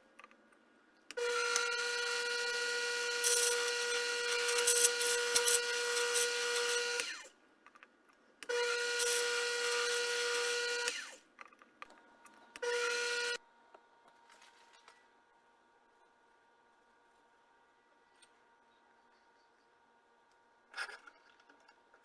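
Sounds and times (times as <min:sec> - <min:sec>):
small power tool motor whining: 0:01.1 - 0:07.3, 0:08.5 - 0:11.2, 0:12.6 - 0:13.4.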